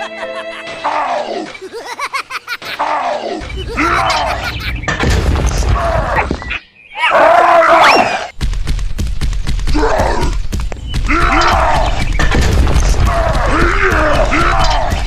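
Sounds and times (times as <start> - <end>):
voice-like groans and cries: 0.7 - 1.8, 2.7 - 4.6, 12.9 - 15.0.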